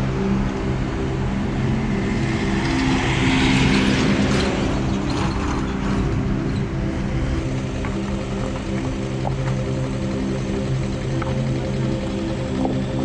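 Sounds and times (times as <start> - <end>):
vehicle passing by: 0.0 - 9.2
steady low hum: 0.0 - 13.0.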